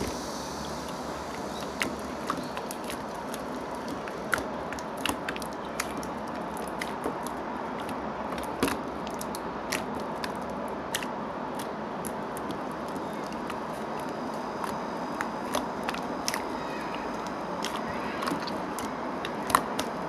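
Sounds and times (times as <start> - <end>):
steady hiss: 0.0 - 8.3
slime clicking and popping: 0.9 - 20.0.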